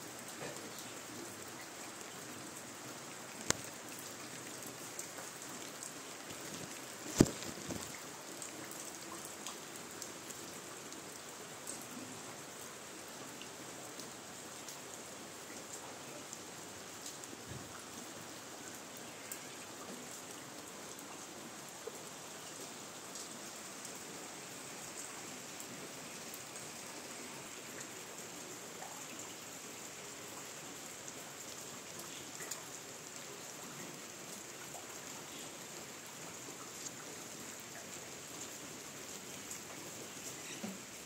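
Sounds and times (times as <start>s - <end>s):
rain hissing on foliage: 0.0s - 41.0s
raindrops ticking: 3.3s - 9.6s.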